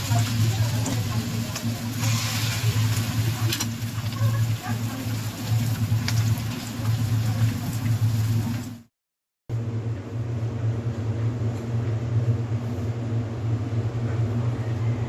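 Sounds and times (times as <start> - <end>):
steady low hum: 9.5 - 15.0.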